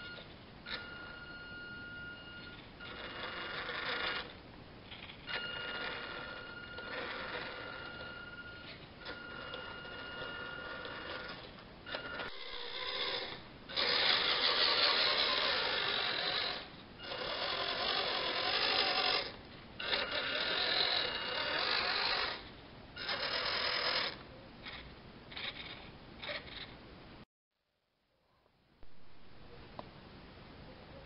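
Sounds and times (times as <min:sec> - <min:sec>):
thin steady whine: 0:00.0 - 0:24.8
toy truck motor whirring: 0:02.4 - 0:26.7.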